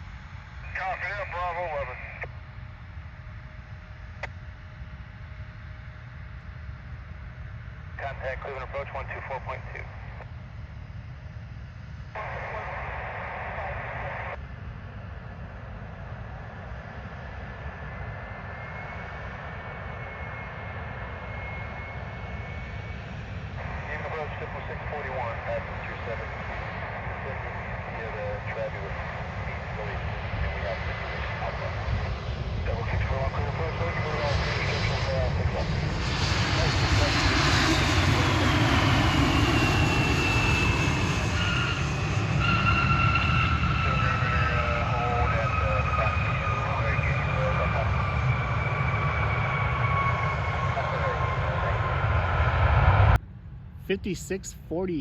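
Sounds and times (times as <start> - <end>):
jet engines running: 0.0 - 55.0.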